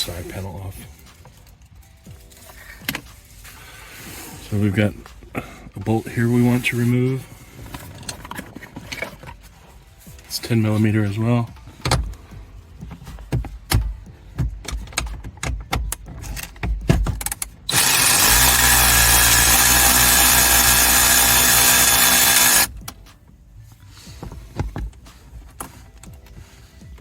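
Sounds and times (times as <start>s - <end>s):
power drill running: 17.7s - 22.7s.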